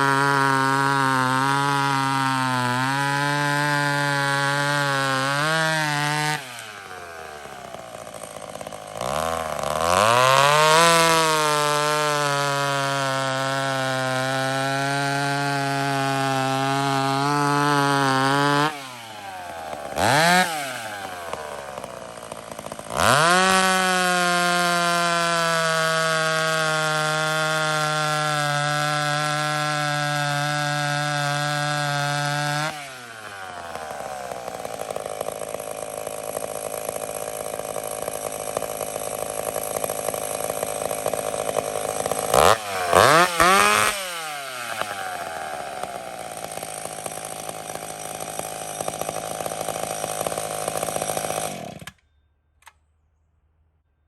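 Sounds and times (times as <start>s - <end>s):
chainsaw cutting wood: 0.0s - 53.2s.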